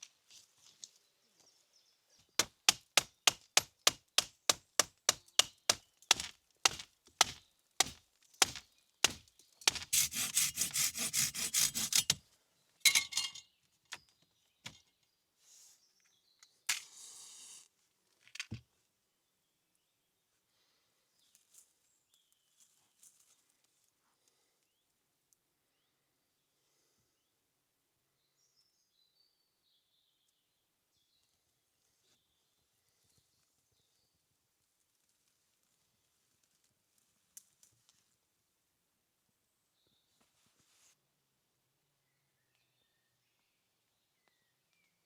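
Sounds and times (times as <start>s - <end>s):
wood chopping strikes: 2.4s - 12.2s
continuous scraping noise: 9.7s - 12.2s.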